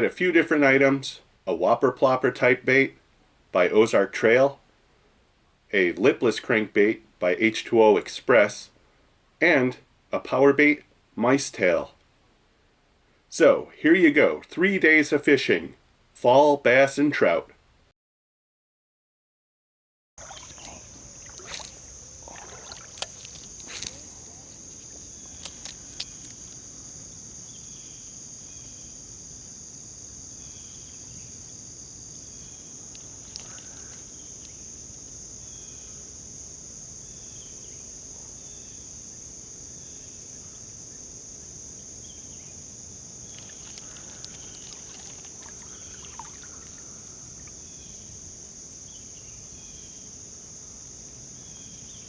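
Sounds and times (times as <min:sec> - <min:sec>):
high-pitched insect chorus: 0:20.2 - 0:52.0.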